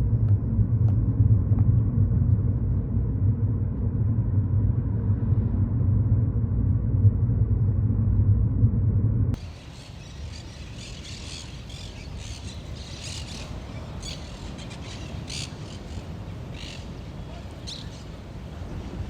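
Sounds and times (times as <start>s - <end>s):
steady low rumble: 0.0s - 19.0s
birds calling: 9.4s - 19.0s.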